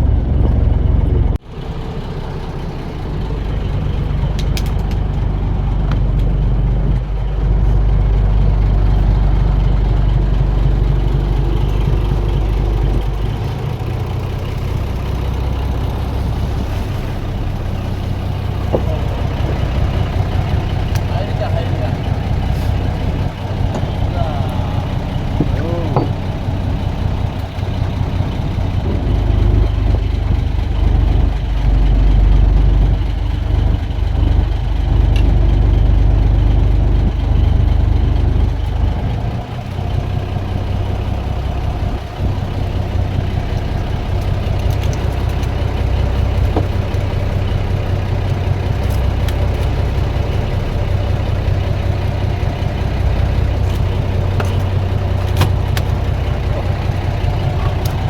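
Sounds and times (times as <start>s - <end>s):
boat engine running at low revs: 0.0s - 58.0s.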